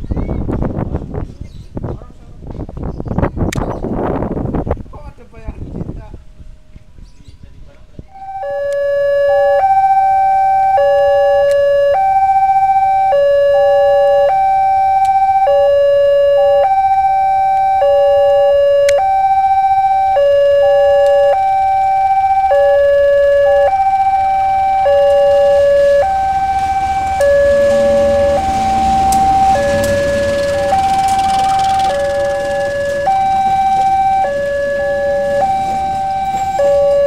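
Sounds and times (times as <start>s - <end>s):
level-crossing two-tone alarm: 8.1s - 37.0s.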